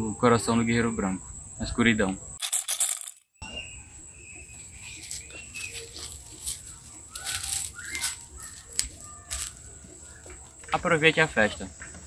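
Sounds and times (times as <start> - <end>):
high-pitched insect buzz: 2.4 - 10.7
dry rustling: 4.6 - 10.6.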